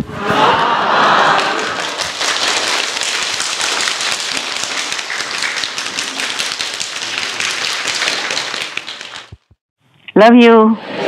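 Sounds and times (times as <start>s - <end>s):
audience clapping: 0.9s - 9.6s.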